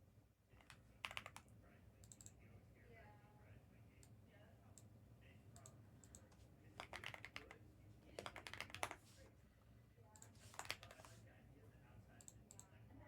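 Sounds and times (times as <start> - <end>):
computer keyboard typing: 0.6 - 2.4, 5.6 - 9.1, 10.2 - 11.2.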